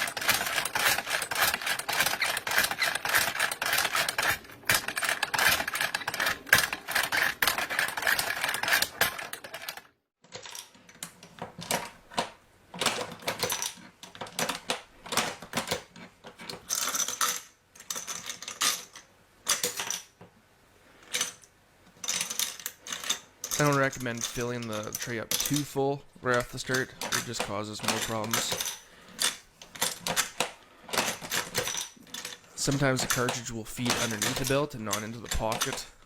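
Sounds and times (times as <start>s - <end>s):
belt-loading machine clicking: 0.0s - 9.9s, 22.2s - 36.0s.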